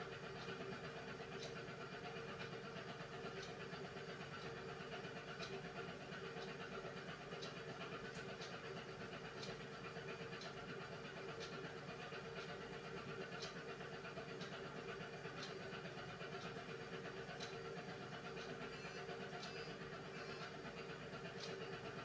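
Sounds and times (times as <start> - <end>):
washing machine motor hum: 16.6 - 22.0.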